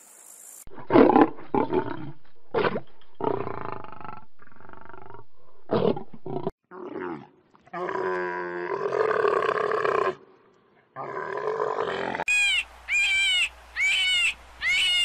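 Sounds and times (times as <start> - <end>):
lion roaring: 0.7 - 10.2, 11.0 - 12.2.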